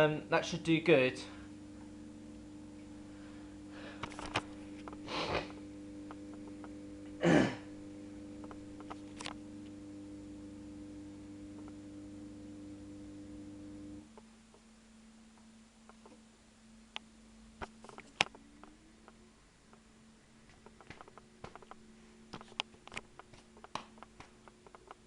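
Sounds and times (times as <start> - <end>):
dishwasher pump hum: 0.0 - 14.5.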